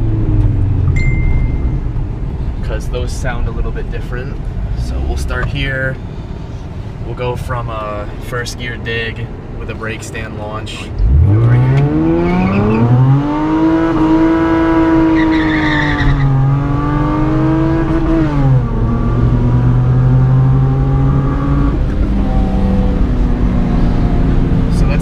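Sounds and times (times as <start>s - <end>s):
car exhaust revving hard: 11.0s - 25.0s
tire squeal: 12.1s - 13.0s, 14.9s - 16.6s.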